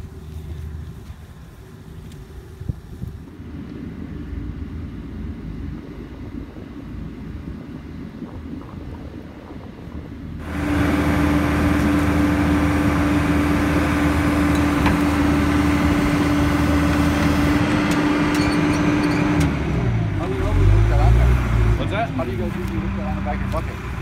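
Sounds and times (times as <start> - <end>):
heavy machine engine whining: 10.4 - 24.0.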